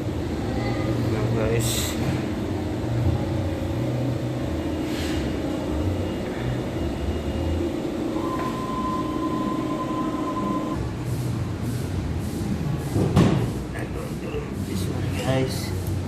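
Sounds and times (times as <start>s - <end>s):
thin steady whine: 0.0s - 11.0s
industrial machinery humming: 0.0s - 16.0s.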